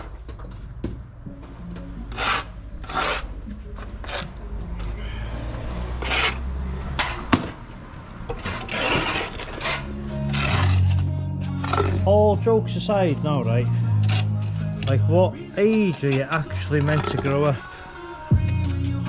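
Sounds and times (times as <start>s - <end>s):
trowel scraping mortar: 2.1s - 6.5s, 8.3s - 12.2s, 13.6s - 18.0s.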